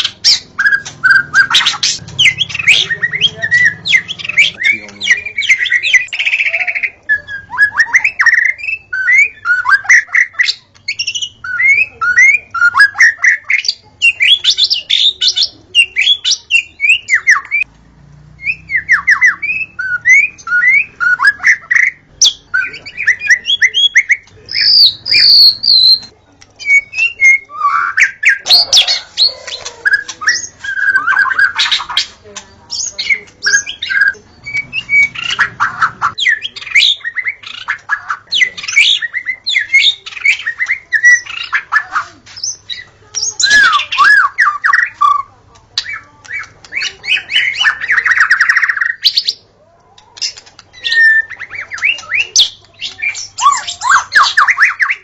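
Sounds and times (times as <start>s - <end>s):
bird singing chirps and whistles: 0.0s - 17.7s, 18.4s - 29.3s, 29.9s - 32.0s, 32.7s - 41.8s, 42.4s - 49.4s, 50.2s - 55.0s.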